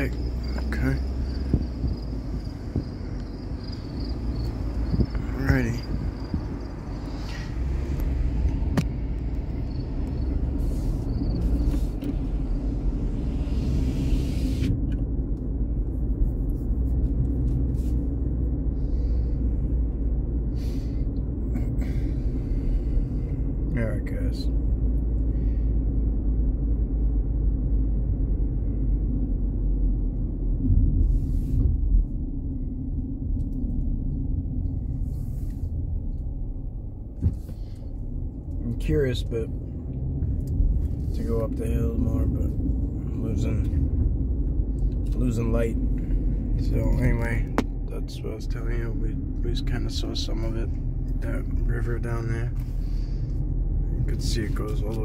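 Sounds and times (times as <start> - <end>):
engine and road noise: 0.0 - 55.0.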